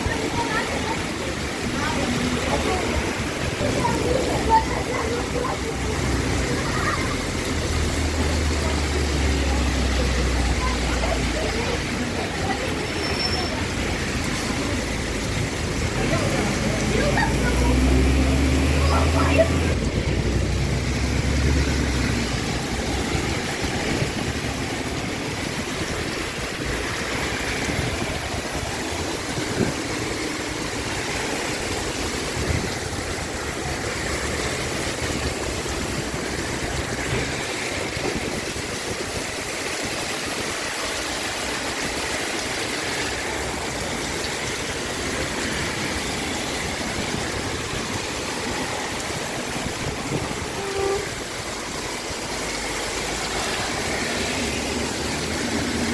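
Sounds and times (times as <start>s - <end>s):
heavy rain pouring: 0.0s - 55.9s.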